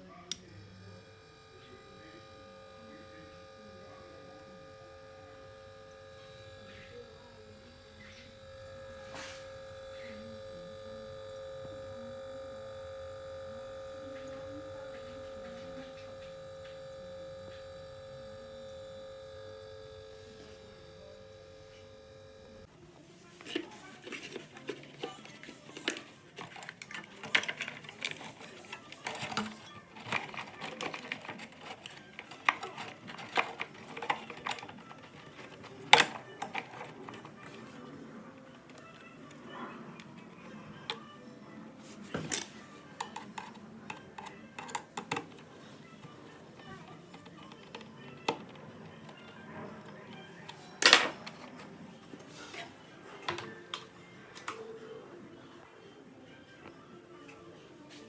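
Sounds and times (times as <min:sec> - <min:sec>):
objects clattering: 0:23.2 - 0:41.0
clicks and light knocks: 0:23.4 - 0:37.6.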